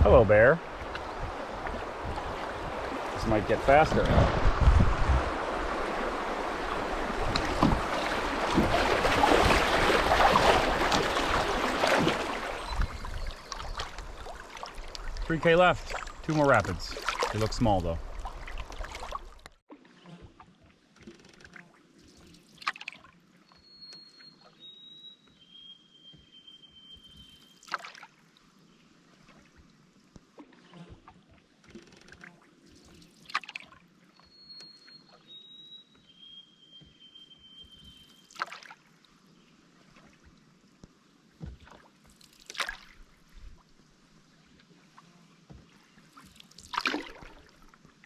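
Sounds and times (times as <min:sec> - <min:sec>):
canoe paddle splashing: 0:00.0 - 0:23.2, 0:27.0 - 0:28.3, 0:29.1 - 0:48.0
river water lapping: 0:00.0 - 0:24.7, 0:26.3 - 0:35.6, 0:36.5 - 0:48.0
songbird whistling descending notes: 0:23.5 - 0:27.5, 0:34.2 - 0:38.3.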